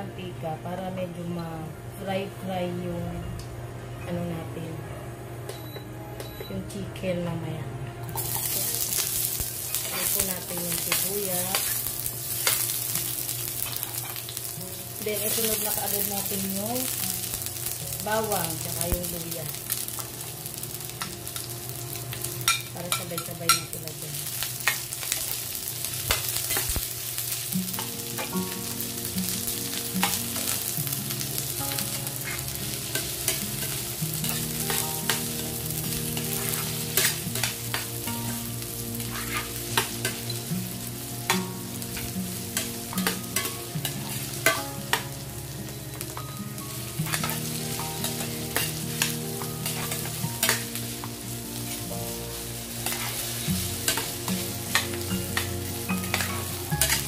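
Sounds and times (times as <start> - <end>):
vegetables sizzling in oil: 8.1 - 57.0
spatula scraping a metal pan: 39.1 - 39.5.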